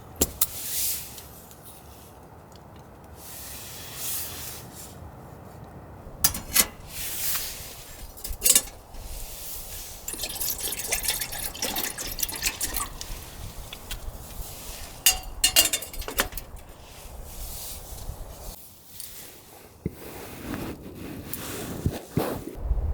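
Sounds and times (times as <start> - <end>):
liquid pouring and dripping: 8.2 - 16.7.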